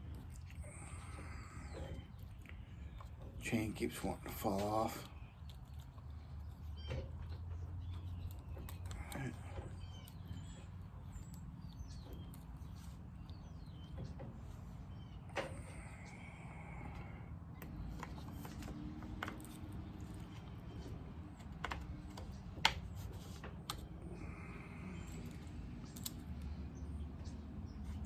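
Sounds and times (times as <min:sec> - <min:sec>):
clicks and knocks of handled parts: 0:04.2 - 0:14.6, 0:16.8 - 0:24.1, 0:25.0 - 0:28.0.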